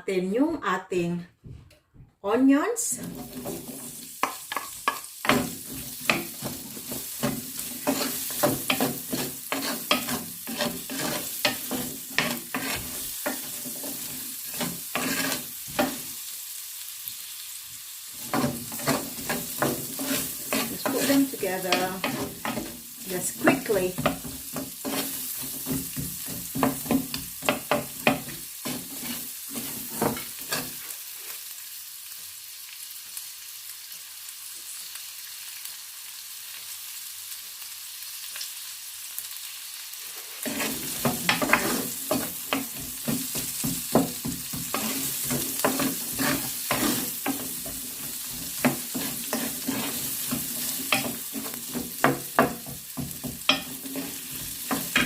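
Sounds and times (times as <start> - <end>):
onions sizzling in hot oil: 2.5 - 55.0
spatula scraping a pan: 3.0 - 16.2, 18.2 - 31.5, 40.1 - 55.0.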